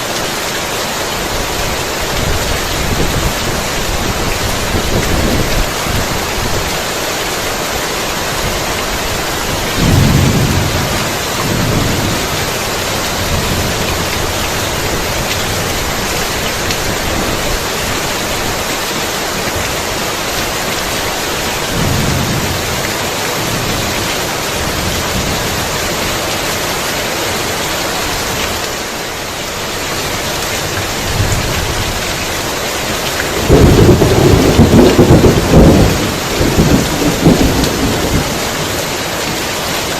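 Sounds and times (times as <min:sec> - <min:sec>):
heavy rain falling: 0:00.0 - 0:39.9
thunder rumbling: 0:09.5 - 0:17.5, 0:21.5 - 0:25.7, 0:33.3 - 0:38.9.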